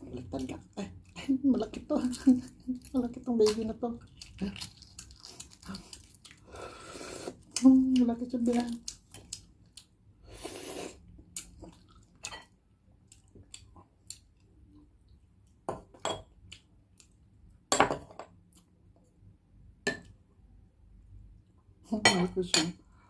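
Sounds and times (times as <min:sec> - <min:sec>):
chewing: 0:04.0 - 0:06.5, 0:10.9 - 0:12.3.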